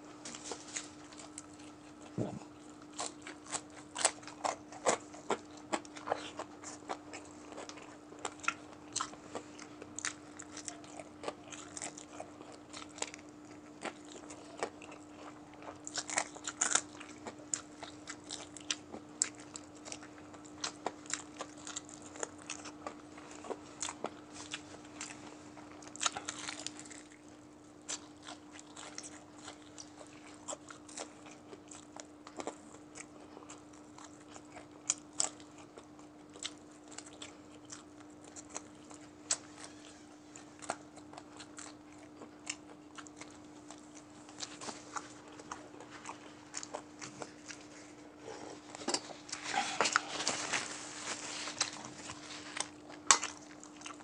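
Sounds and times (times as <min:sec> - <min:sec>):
chewing and gnawing meat: 0:00.0 - 0:54.0
tissue paper rustling: 0:49.2 - 0:52.6.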